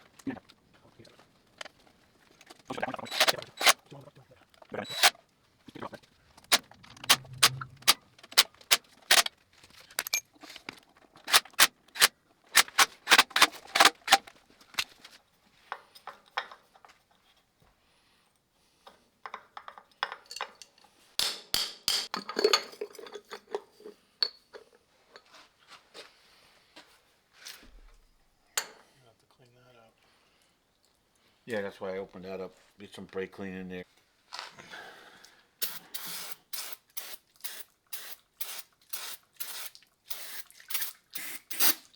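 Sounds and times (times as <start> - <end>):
metal tools clinking: 2.4 - 3.8, 4.6 - 5.2, 6.4 - 15.0, 19.6 - 21.0.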